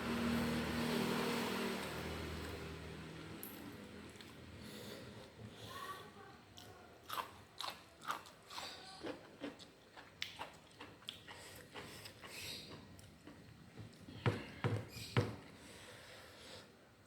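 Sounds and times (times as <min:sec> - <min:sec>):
person chewing crunchy food: 0:06.6 - 0:13.6.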